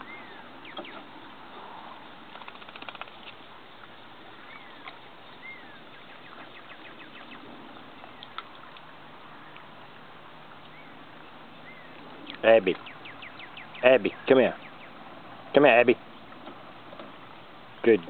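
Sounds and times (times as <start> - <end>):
bird chirps: 0.0 - 1.6, 4.4 - 8.3, 10.6 - 11.0, 11.6 - 15.0
faint clicks: 2.3 - 3.4.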